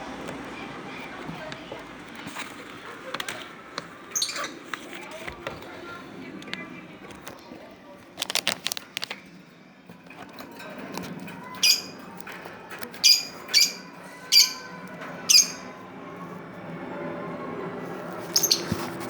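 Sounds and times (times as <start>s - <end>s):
bird chirping: 4.0s - 4.7s, 11.5s - 12.1s, 12.9s - 15.8s, 18.2s - 19.0s.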